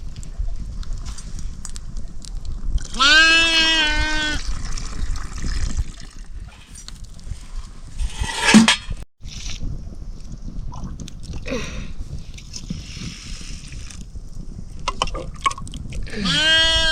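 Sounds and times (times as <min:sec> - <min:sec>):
goat or sheep bleating: 0:02.9 - 0:04.4, 0:16.1 - 0:16.9.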